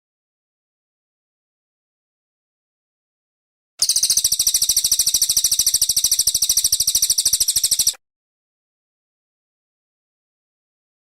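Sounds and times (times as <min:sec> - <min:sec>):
songbird high trill: 0:03.8 - 0:08.0.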